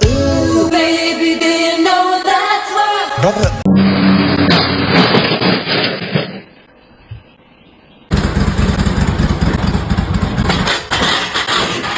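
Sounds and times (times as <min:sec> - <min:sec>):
music: 0:00.0 - 0:03.7
engine running rough: 0:08.1 - 0:11.9.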